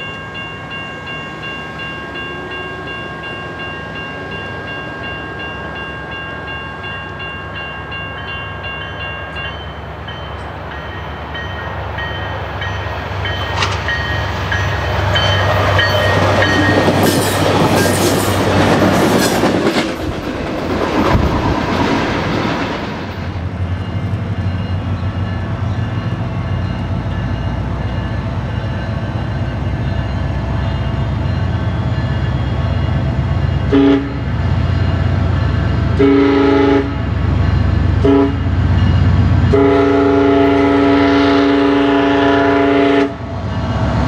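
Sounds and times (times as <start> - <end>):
train wheels clattering on rails: 10.3 - 33.8
train horn: 33.7 - 34.3, 36.0 - 37.2, 38.0 - 38.5, 39.5 - 43.3.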